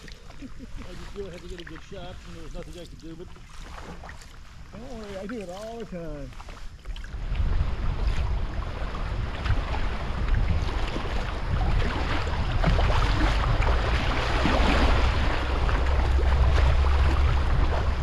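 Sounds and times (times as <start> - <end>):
river water rushing and splashing: 0.0 - 18.0
wind rumbling on microphone: 0.0 - 18.0.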